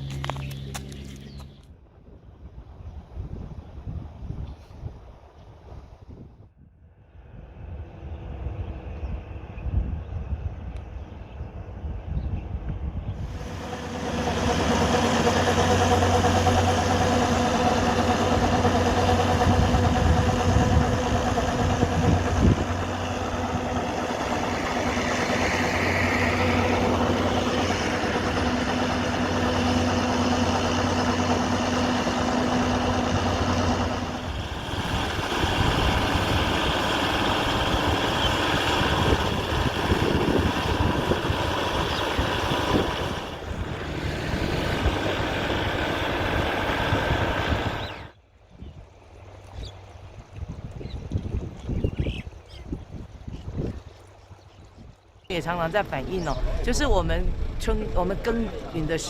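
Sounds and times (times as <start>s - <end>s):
engine noise: 0.0s - 1.7s, 12.6s - 48.4s, 55.3s - 59.0s
farm machinery engine running: 13.2s - 48.2s, 55.3s - 59.0s.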